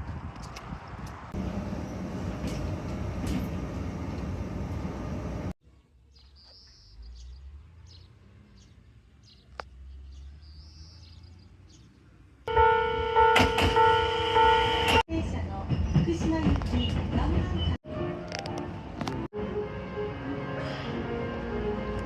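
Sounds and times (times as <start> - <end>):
train rumbling and hissing: 1.2 - 5.6, 14.5 - 17.9
birds chirping: 5.8 - 12.4.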